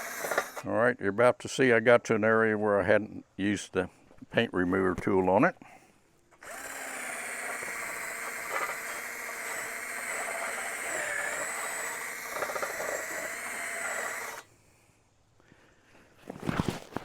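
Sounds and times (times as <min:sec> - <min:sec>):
electric drill stripping rusty metal: 0:00.0 - 0:00.6, 0:06.4 - 0:14.5.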